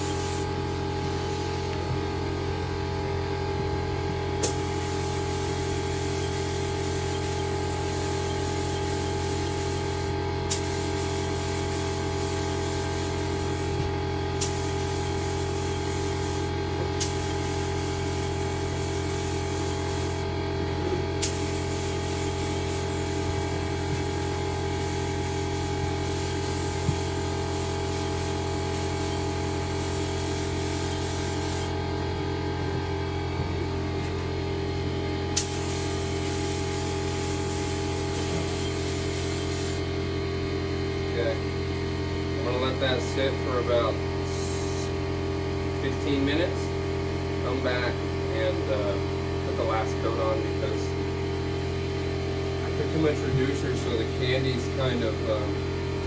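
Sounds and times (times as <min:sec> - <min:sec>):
paint spray gun hissing: 0:00.0 - 0:02.9, 0:03.5 - 0:40.0
steady low hum: 0:00.0 - 0:56.0.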